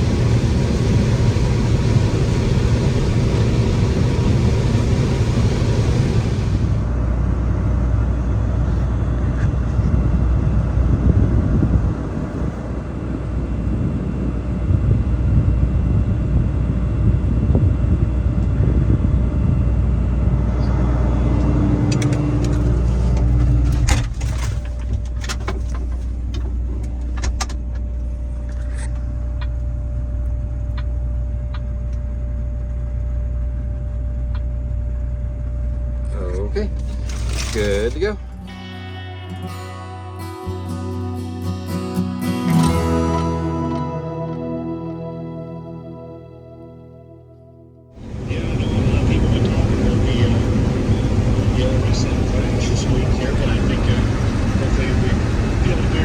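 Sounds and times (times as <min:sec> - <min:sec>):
vehicle engine rumbling: 0:00.0 - 0:14.5, 0:17.2 - 0:29.7, 0:48.0 - 0:56.0.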